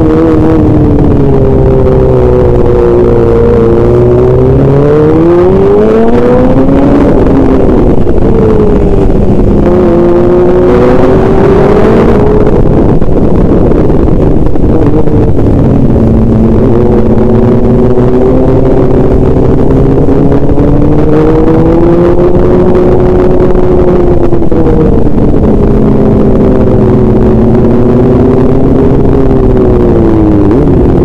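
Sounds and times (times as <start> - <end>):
road and wind rumble: 0.0 - 31.0
vehicle engine running: 0.0 - 31.0.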